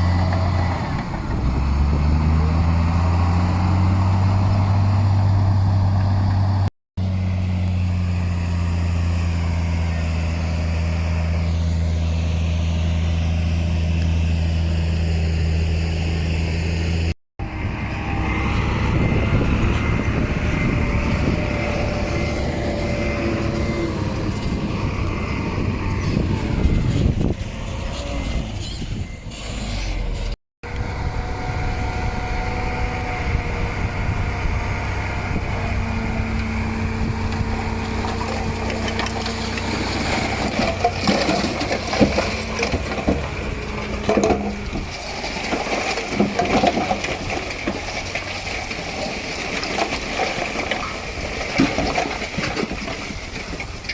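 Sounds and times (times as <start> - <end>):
diesel earthmoving machinery running: 0.0 - 53.9
clanks and crunching: 35.3 - 53.9.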